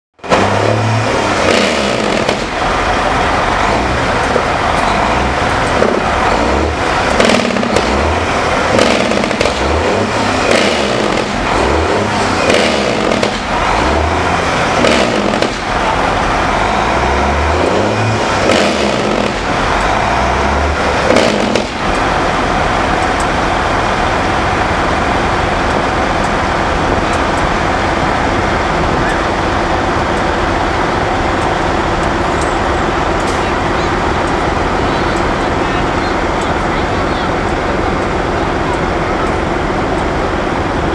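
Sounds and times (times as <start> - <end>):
heavy truck engines running: 0.2 - 40.9
sharp cracks: 1.3 - 2.6, 7.0 - 14.0, 14.6 - 16.1, 20.9 - 22.1.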